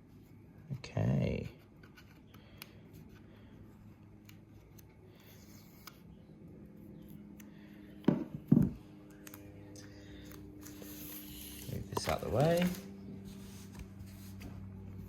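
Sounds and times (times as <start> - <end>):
packaging rustling and clicking: 11.6 - 12.9.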